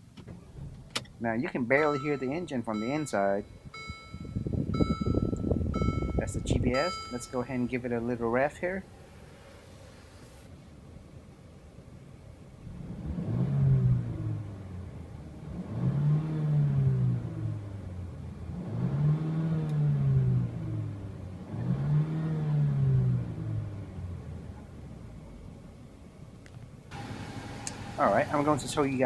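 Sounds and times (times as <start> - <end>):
car engine revving: 12.6 - 25.4, 26.9 - 29.0.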